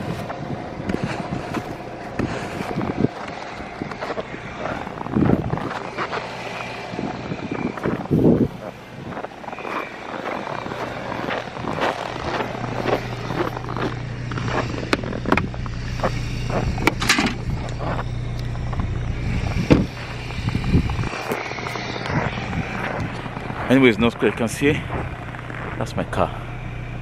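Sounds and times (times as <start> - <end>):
car engine idling: 0.0 - 27.0
snow crunching and scraping: 0.0 - 27.0.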